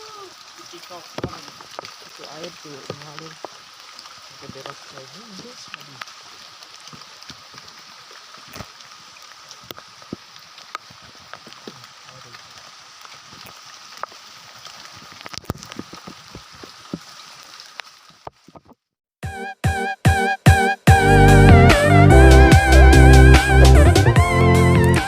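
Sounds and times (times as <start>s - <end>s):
heavy rain falling: 0.0s - 18.6s, 21.0s - 25.0s
music: 19.2s - 25.0s.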